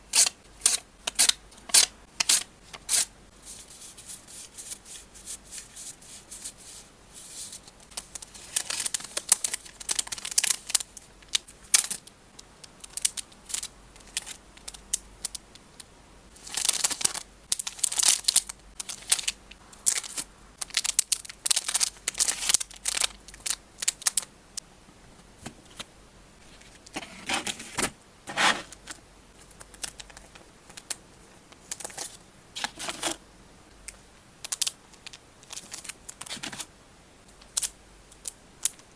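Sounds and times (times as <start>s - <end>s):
faint low recording hum: 0.0s - 38.9s
plastic sleeves crinkling: 7.2s - 12.0s, 16.4s - 24.3s, 26.4s - 33.2s, 34.4s - 36.7s.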